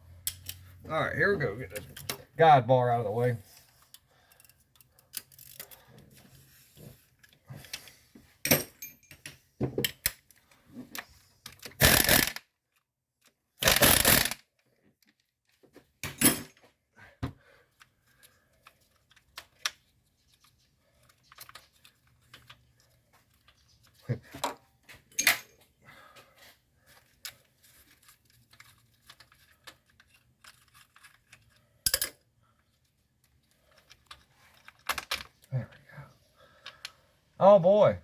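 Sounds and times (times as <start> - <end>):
tools and metal parts clattering: 7.2 - 12.4, 13.6 - 14.4, 15.8 - 16.7, 17.8 - 25.7, 26.9 - 35.5.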